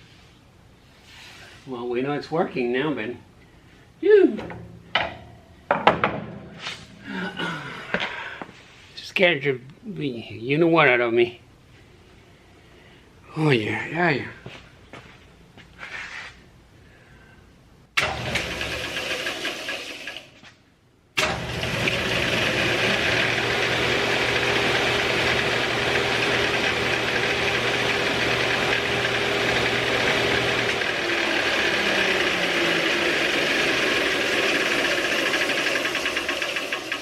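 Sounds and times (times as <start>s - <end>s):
sander motor humming and whirring: 21.8s - 37.0s.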